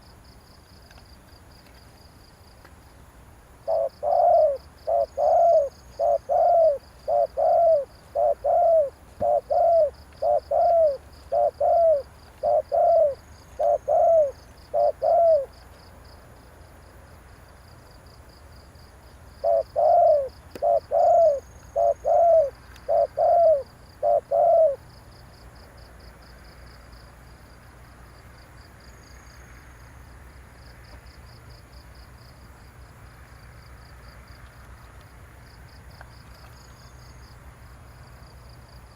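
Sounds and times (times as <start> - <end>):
dove cooing: 3.6 - 15.6, 19.4 - 24.8.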